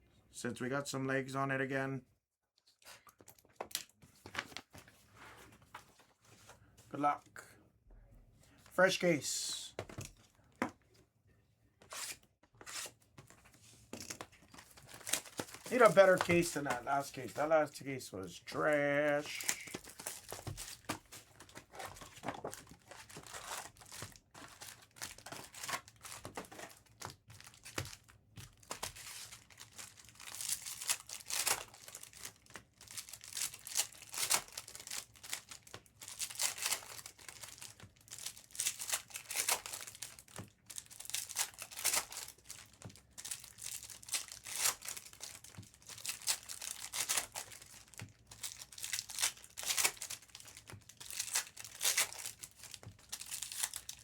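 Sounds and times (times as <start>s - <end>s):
plastic wrap crinkling and tearing: 14.0s - 17.8s, 18.5s - 54.0s.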